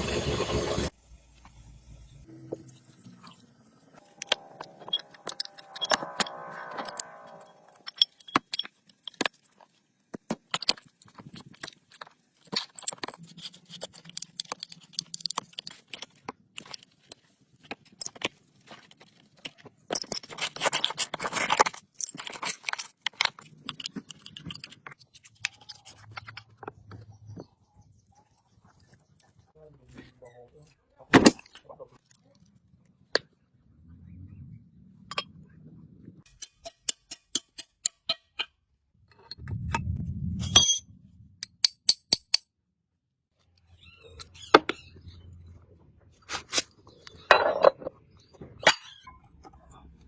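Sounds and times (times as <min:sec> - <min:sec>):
metal tools clinking and scraping: 0:04.0 - 0:09.6, 0:46.3 - 0:48.0.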